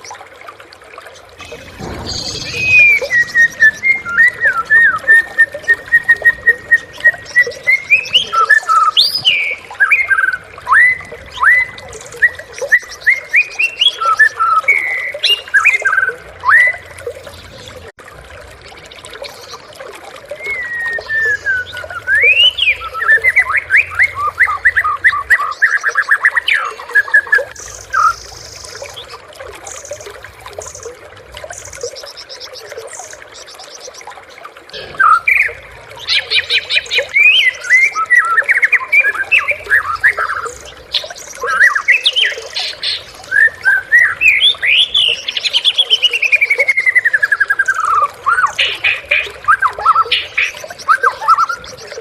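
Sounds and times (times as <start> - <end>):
bird singing whistles and trills: 1.4 - 16.9, 20.3 - 29.2, 34.8 - 52.0.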